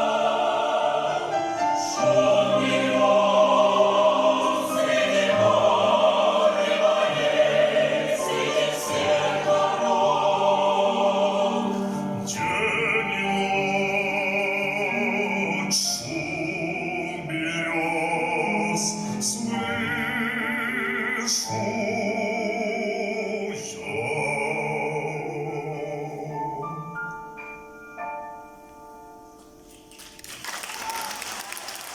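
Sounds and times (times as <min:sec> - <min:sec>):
mixed choir singing: 0:00.0 - 0:26.4
man singing operatically: 0:12.2 - 0:26.8.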